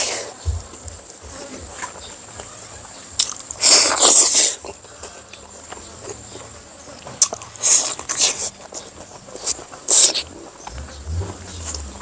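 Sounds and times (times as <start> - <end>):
person biting and chewing food: 3.2 - 4.4.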